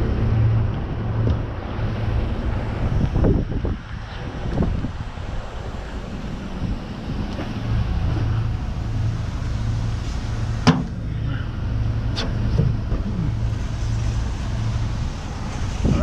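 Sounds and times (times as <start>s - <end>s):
tow truck engine idling: 5.0s - 15.9s.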